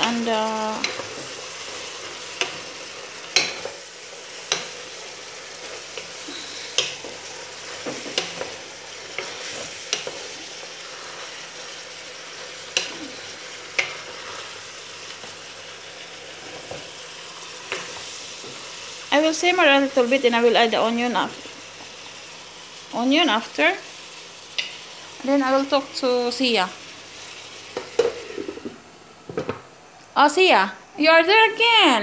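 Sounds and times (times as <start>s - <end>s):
food sizzling in a pot: 0.0s - 32.0s
spatula knocking and scraping pan: 6.8s - 10.3s, 27.7s - 29.6s.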